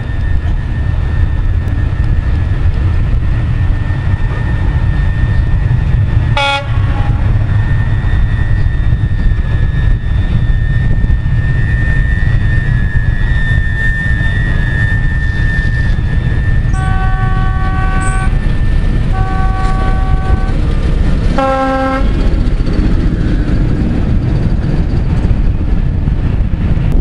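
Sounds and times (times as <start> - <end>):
high whine: 0.0 - 27.0
train rumble: 0.0 - 27.0
train horn toot: 6.3 - 7.5, 16.6 - 20.6, 21.3 - 22.2.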